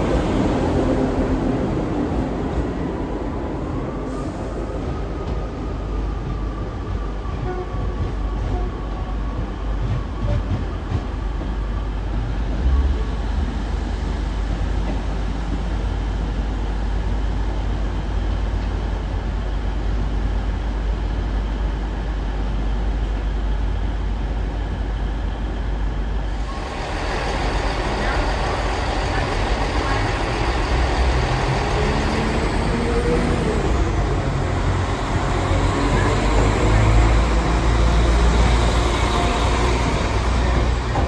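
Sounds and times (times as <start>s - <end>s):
train rumbling: 0.0s - 41.0s.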